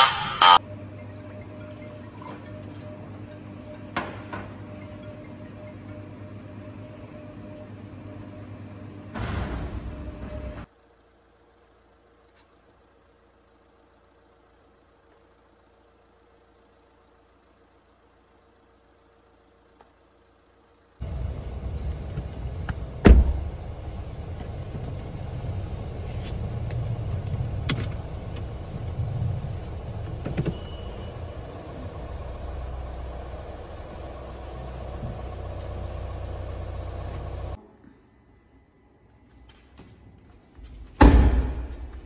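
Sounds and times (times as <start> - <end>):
car engine rumbling: 10.6 - 37.6
loud thump: 23.0 - 23.5, 41.0 - 42.0.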